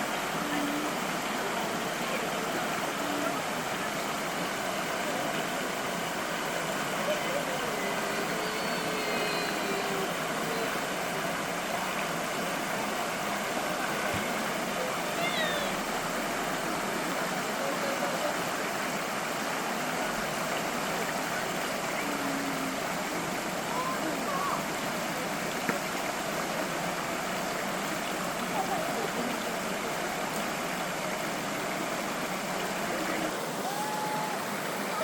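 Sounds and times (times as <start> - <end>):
faint distant voices: 0.0 - 35.0
stream rushing: 0.0 - 35.0.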